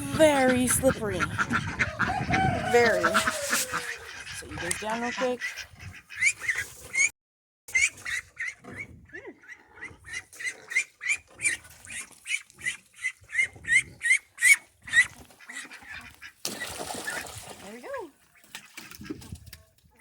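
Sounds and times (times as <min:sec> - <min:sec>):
waterfowl calling: 0:00.0 - 0:07.1.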